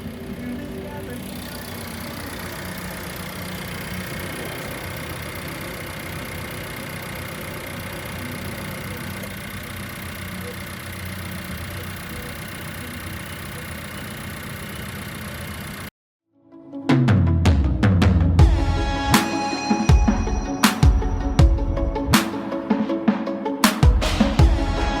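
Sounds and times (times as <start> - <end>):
car engine idling: 0.0 - 15.9.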